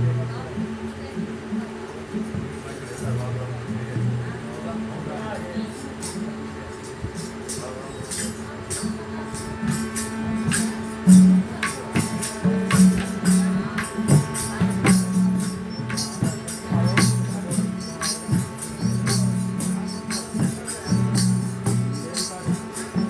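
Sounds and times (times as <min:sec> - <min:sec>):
jingling hand percussion: 0:00.0 - 0:23.0
held low instrumental notes: 0:05.8 - 0:23.0.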